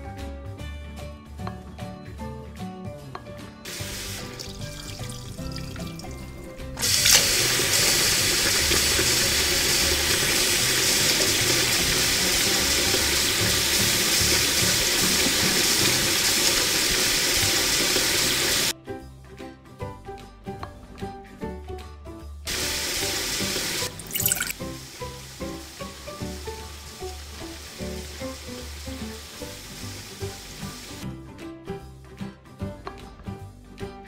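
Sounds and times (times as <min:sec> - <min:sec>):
spice paste sizzling in hot oil: 0:03.7 - 0:06.2, 0:06.8 - 0:18.7, 0:22.5 - 0:31.0.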